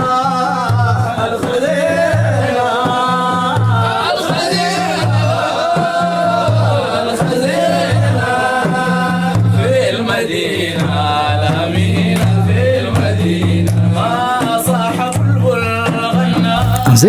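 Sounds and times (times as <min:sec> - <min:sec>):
person chanting religious song: 0:16.6 - 0:17.0.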